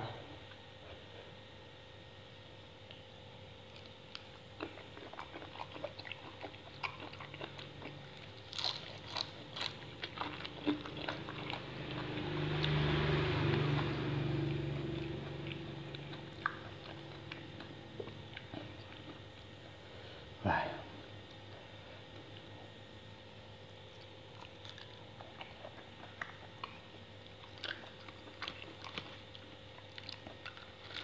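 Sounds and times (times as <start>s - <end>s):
low hum: 0.0s - 31.0s
chewing with crunchy clicks: 2.8s - 19.8s, 23.8s - 31.0s.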